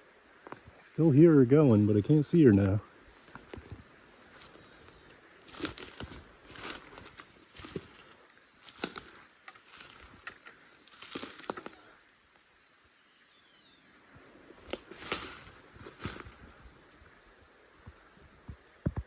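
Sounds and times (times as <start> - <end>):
footsteps through undergrowth: 0.6 - 11.9, 14.1 - 18.8
dry leaves crackling: 0.9 - 11.9, 14.2 - 17.4
twigs snapping: 2.6 - 11.8, 14.6 - 16.6
faint high bird call: 12.6 - 14.0.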